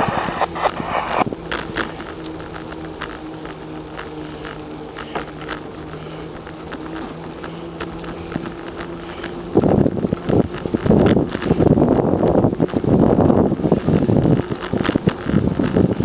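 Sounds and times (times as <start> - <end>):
wind buffeting microphone: 0.0 - 1.4, 9.5 - 16.0
steady low hum: 0.0 - 16.0.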